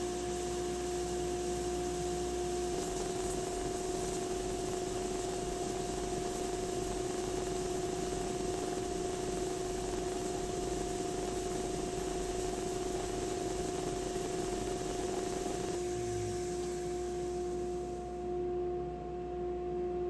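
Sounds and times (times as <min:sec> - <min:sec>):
broad hiss: 0:00.0 - 0:18.3
power tool motor humming: 0:13.7 - 0:18.2.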